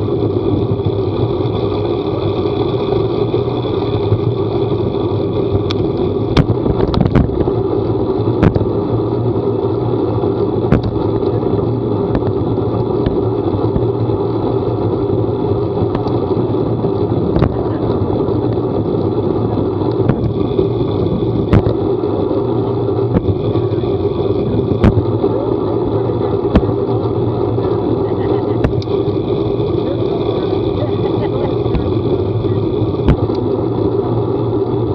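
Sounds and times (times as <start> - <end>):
vehicle running: 0.0 - 34.9.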